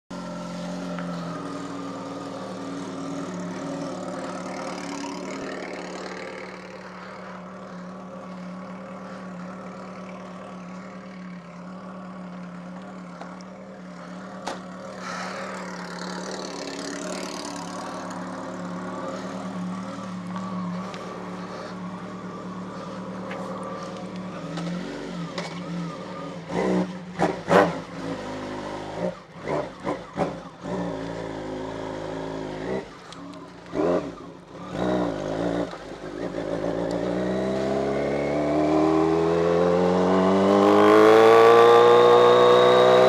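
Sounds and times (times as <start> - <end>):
motorcycle engine idling: 0.1 - 27.2.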